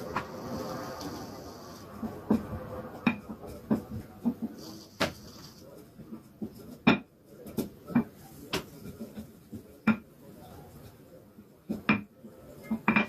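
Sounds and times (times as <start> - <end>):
dishes and utensils clinking: 12.6 - 13.0.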